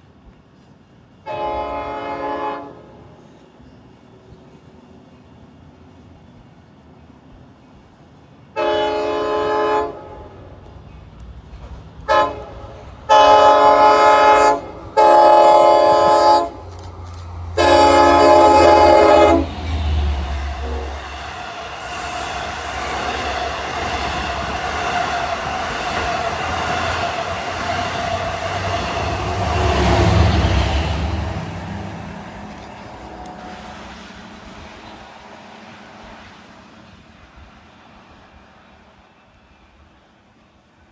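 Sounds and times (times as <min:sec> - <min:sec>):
train passing with wheel noise: 0:00.0 - 0:40.9
train air horn blasts: 0:01.3 - 0:03.2, 0:08.6 - 0:10.6, 0:12.0 - 0:22.4.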